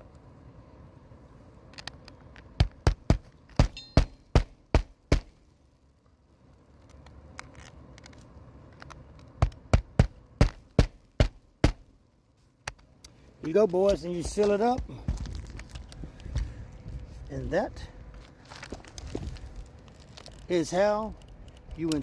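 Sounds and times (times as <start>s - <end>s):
hammer striking roofing nails: 2.6s - 5.4s, 9.4s - 11.9s, 13.9s - 15.2s.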